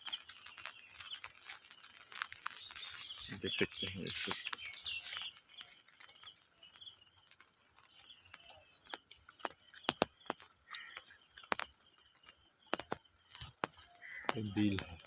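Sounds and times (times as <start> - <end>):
insects chirring: 0.0 - 15.0
sharp taps and clicks: 7.3 - 15.0.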